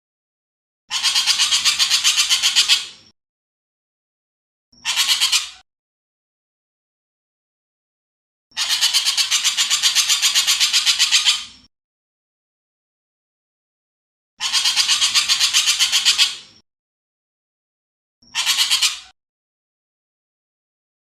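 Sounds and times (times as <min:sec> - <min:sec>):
bird rasping rattle calls: 0:00.9 - 0:03.0, 0:04.8 - 0:05.6, 0:08.5 - 0:11.6, 0:14.4 - 0:16.5, 0:18.3 - 0:19.2.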